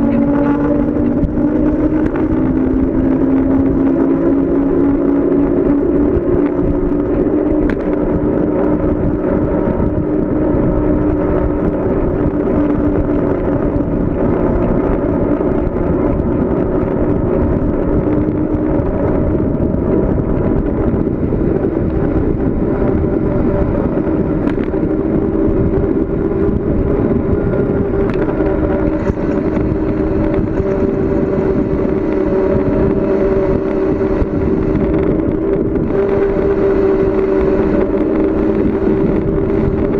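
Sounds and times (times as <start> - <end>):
bicycle road noise: 0.0 - 39.9
steady hum: 0.0 - 39.9
wind rushing: 0.0 - 39.9.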